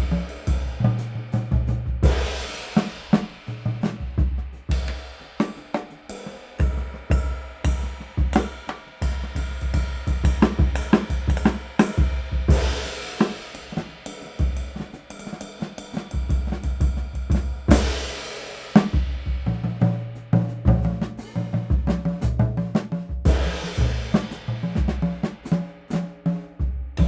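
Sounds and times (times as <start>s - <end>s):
drum kit groove: 0.0s - 27.0s.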